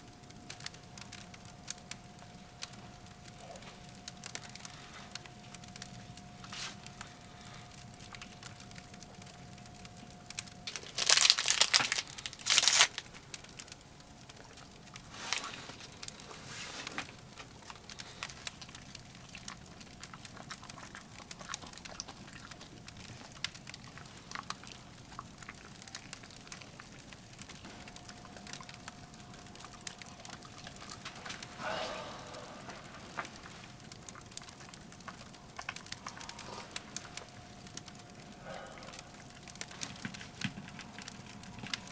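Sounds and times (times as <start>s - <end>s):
wood fire crackling: 0.0s - 41.9s
crumpling rustles: 0.3s - 41.9s.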